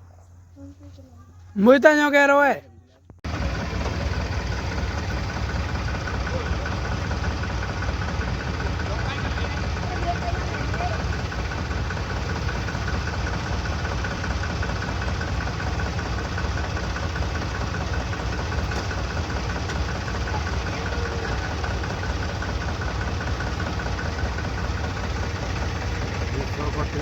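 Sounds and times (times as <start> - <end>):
tractor diesel engine running: 3.2 - 27.0.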